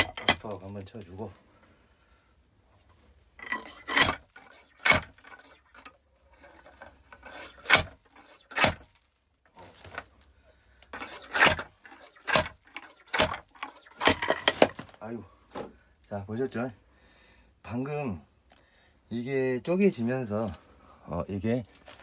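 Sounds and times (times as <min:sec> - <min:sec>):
axe striking wood: 0:07.6 - 0:08.9, 0:11.3 - 0:11.6, 0:12.3 - 0:14.8.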